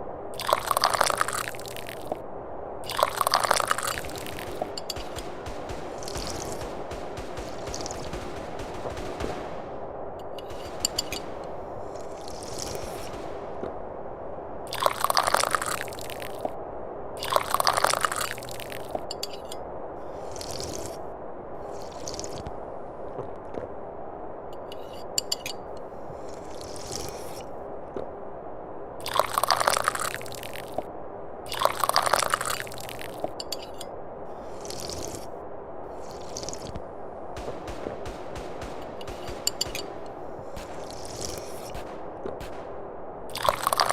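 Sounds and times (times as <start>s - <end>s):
small crackling sounds: 0.4s - 16.6s, 17.2s - 23.8s, 24.5s - 28.2s, 29.0s - 43.9s
person slurping tea: 2.9s - 4.6s, 34.4s - 35.3s, 36.0s - 36.8s.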